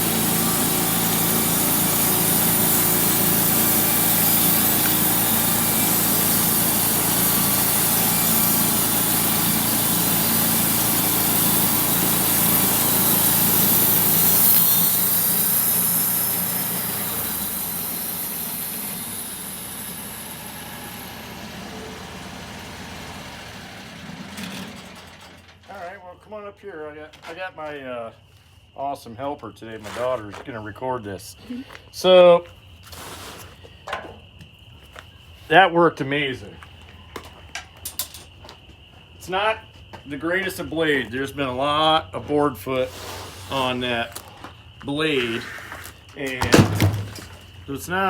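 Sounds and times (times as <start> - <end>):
saw blade hissing through wood: 0.0 - 22.1, 32.9 - 33.6, 42.7 - 44.0, 45.1 - 46.0
engine running under load: 0.0 - 25.9.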